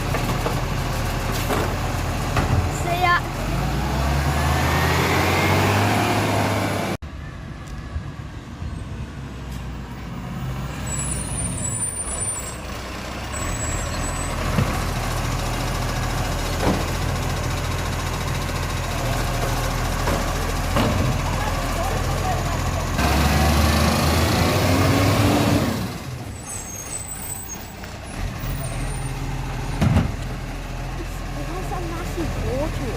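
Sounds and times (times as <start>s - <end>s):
garbage truck engine running: 12.7s - 32.9s.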